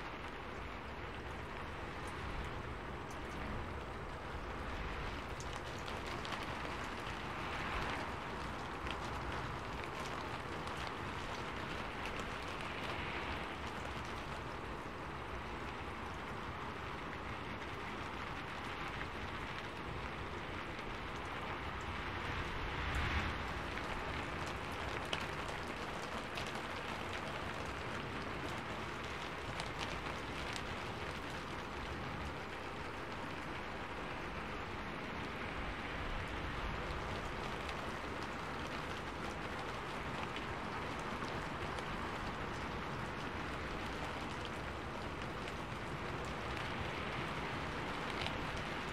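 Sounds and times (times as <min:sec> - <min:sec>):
steady rainfall: 0:00.0 - 0:48.9.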